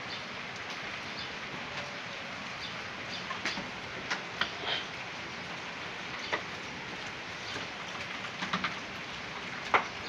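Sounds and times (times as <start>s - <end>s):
rain hissing: 0.0s - 10.0s
sharp ticks of drips: 0.5s - 0.9s.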